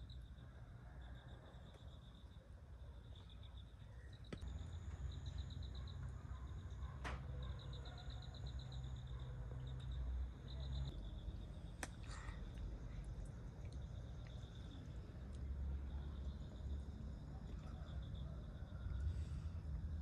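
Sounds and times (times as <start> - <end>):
insect chirping: 0.0 - 20.0
steady low rumble: 8.3 - 20.0.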